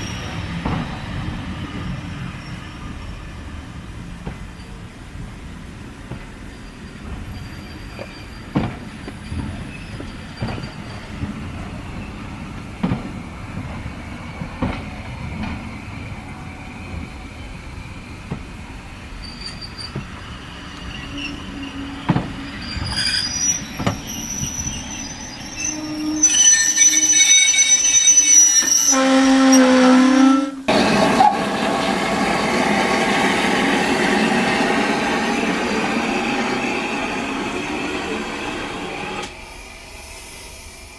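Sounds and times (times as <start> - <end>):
train wheels squealing: 0.0 - 3.8, 6.2 - 12.5, 18.9 - 40.9
train wheels knocking over rail joints: 8.0 - 12.1.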